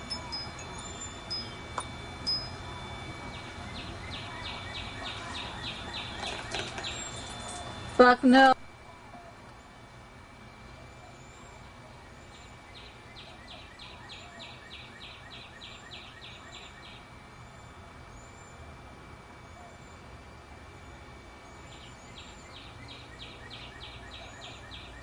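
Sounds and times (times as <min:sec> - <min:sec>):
steady thin high tone: 0:00.0 - 0:12.6.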